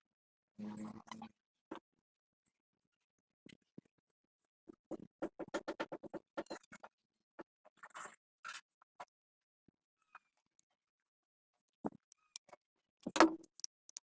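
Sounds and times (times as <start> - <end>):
knocks: 13.2 - 13.4.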